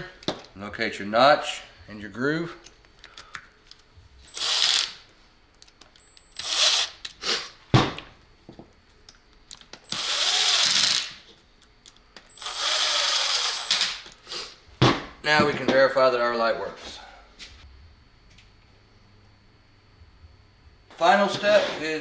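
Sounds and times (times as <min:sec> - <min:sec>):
power driver driving screws: 0:04.3 - 0:05.0, 0:06.1 - 0:07.2, 0:09.9 - 0:11.2, 0:12.4 - 0:14.0.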